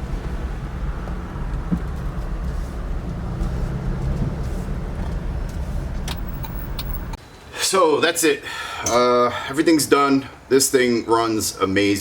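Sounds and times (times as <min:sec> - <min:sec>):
car engine and road noise: 0:00.0 - 0:07.5.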